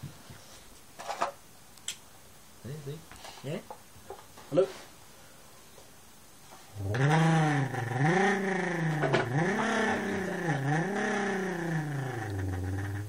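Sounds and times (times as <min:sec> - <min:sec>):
person imitating car engine: 0:06.8 - 0:13.0.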